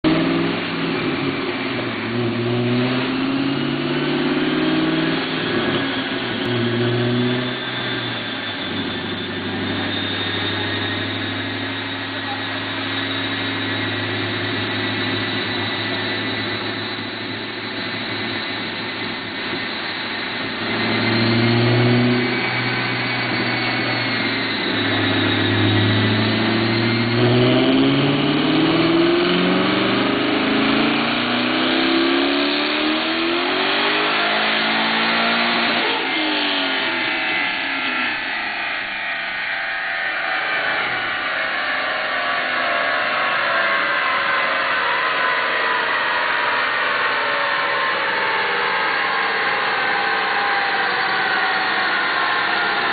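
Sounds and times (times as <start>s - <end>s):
car engine revving: 0.0s - 39.5s
high turbo whine: 0.0s - 52.9s.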